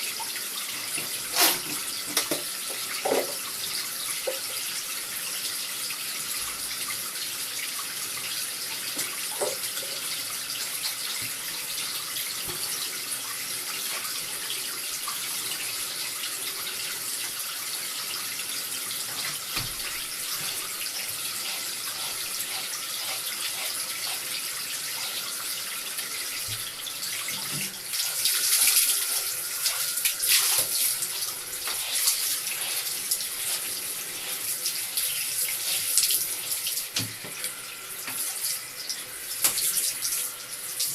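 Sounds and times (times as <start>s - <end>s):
tap water running into a bath: 0.0s - 40.9s.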